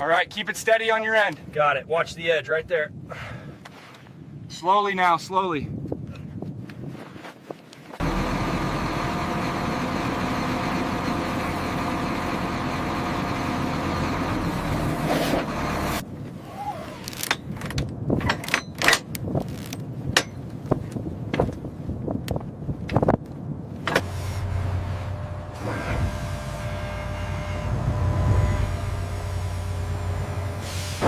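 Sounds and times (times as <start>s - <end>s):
machine motor running: 8.0s - 14.9s, 24.4s - 31.0s.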